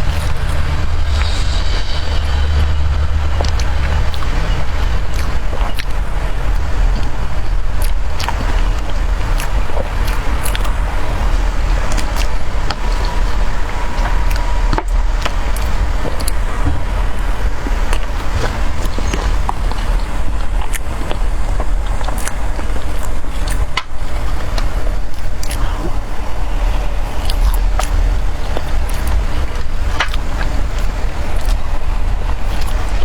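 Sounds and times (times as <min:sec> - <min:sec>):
mouth clicks and chewing: 0:00.0 - 0:33.0
steady low rumble: 0:00.0 - 0:33.0.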